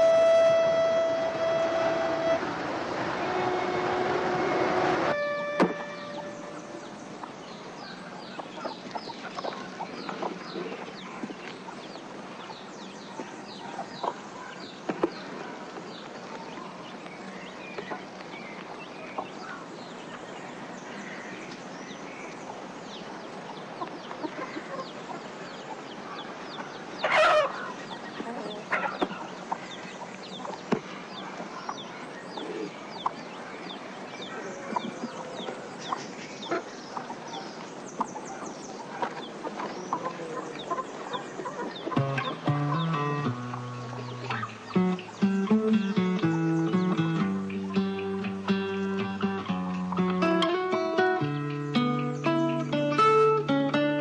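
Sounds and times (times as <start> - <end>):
chickens clucking: 0.0 - 17.0, 22.2 - 54.0
chicken squawk: 27.0 - 29.3, 44.2 - 44.8.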